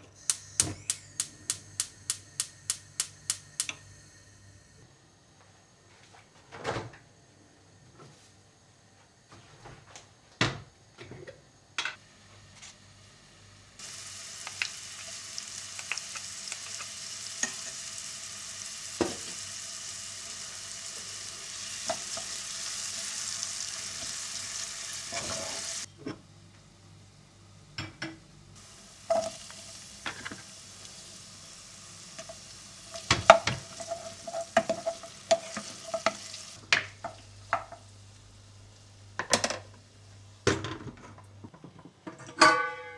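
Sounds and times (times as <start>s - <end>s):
food sizzling in a pan: 0.0s - 4.8s, 13.0s - 25.9s, 28.6s - 39.0s
utensil tapping pan and dishes: 0.3s - 3.8s.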